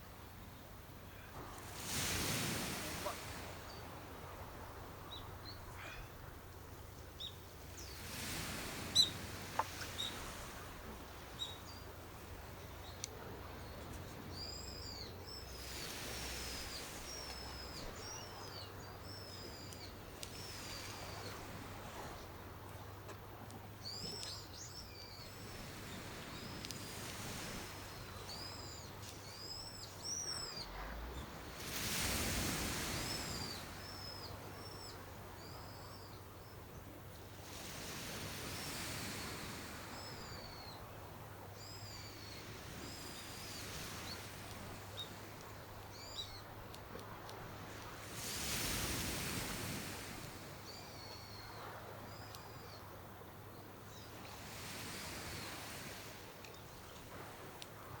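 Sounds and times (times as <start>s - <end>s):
birds chirping: 5.0s - 26.7s, 27.7s - 31.5s, 32.6s - 36.9s.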